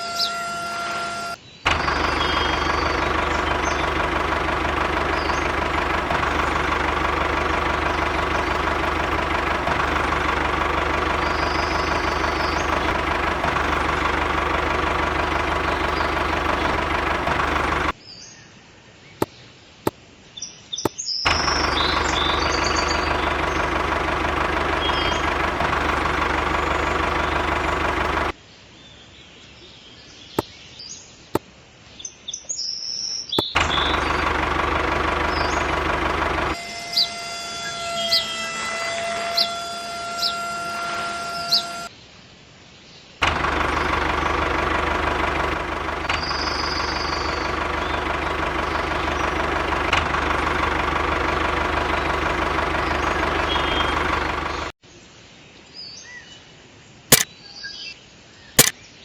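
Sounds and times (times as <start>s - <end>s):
small motor running: 0.0s - 17.9s, 21.3s - 28.3s, 33.6s - 41.9s, 43.2s - 54.7s
birds chirping: 0.0s - 18.5s, 20.8s - 28.3s, 33.2s - 36.6s, 43.3s - 54.7s
sharp clicks: 1.7s - 17.9s.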